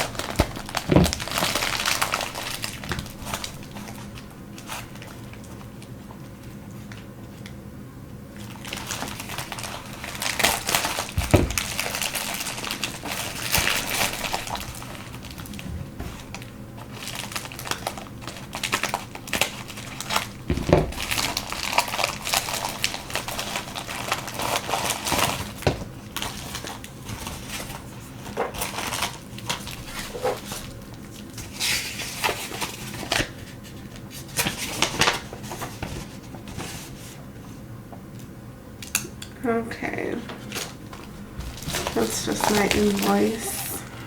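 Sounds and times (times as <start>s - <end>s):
items clicking and knocking: 0.0s - 5.1s, 8.7s - 26.7s, 40.3s - 43.6s
packaging rustling and crinkling: 0.0s - 7.6s, 8.3s - 37.3s, 40.3s - 44.0s.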